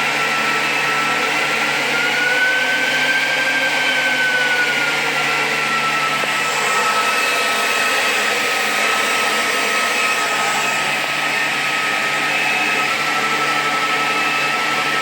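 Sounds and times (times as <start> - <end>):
electric blower motor whining: 0.0 - 15.0.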